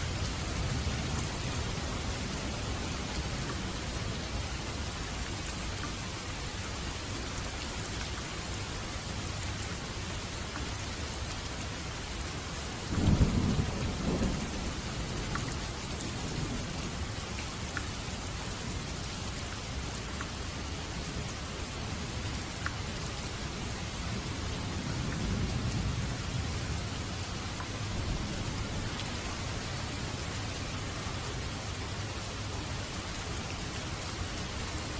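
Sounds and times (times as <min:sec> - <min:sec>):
steady rain falling: 0:00.0 - 0:34.9
thunder rumbling: 0:12.9 - 0:14.8.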